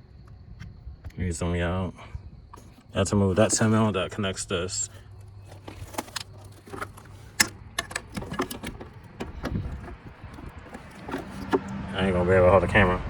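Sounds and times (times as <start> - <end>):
hand tools clicking and clinking: 2.6 - 4.0, 5.0 - 11.7.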